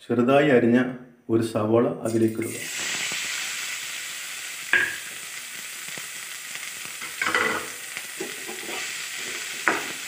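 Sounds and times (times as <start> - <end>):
onion sizzling in oil: 2.1 - 10.0.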